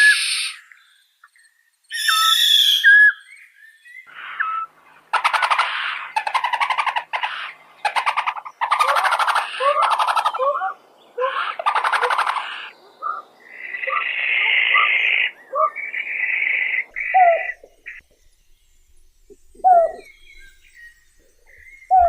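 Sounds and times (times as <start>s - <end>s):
owl hissing calls: 0.0s - 0.7s, 4.1s - 18.0s, 19.5s - 20.4s
owl screeching calls: 1.9s - 3.2s, 4.1s - 18.0s, 19.6s - 20.1s.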